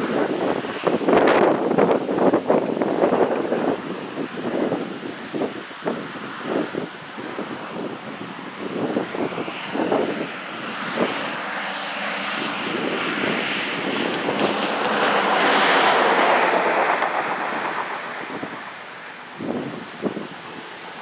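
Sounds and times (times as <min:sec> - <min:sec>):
airplane passing: 0:08.3 - 0:21.0.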